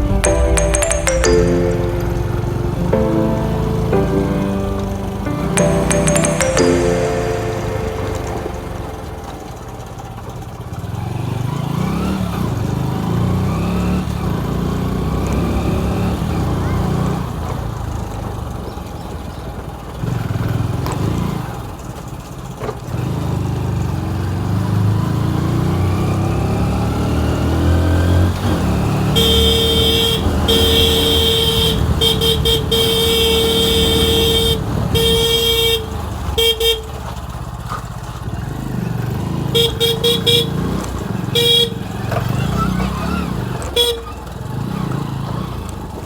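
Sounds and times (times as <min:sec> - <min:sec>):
vehicle horn honking: 0:29.1 - 0:37.0, 0:39.6 - 0:40.8, 0:41.4 - 0:41.9.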